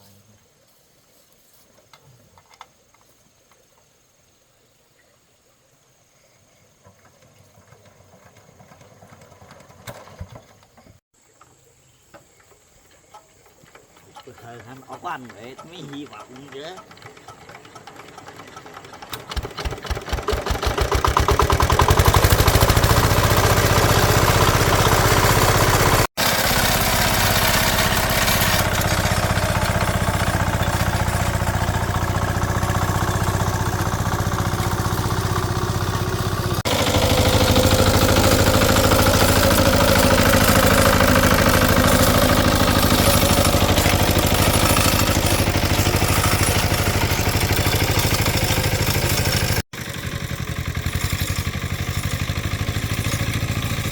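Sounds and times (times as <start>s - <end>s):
small engine running: 13.6s - 53.9s.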